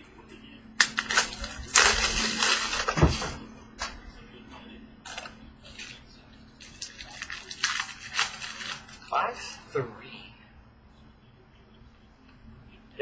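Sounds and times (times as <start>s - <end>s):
packaging rustling: 0.8s - 4.0s, 5.1s - 9.6s.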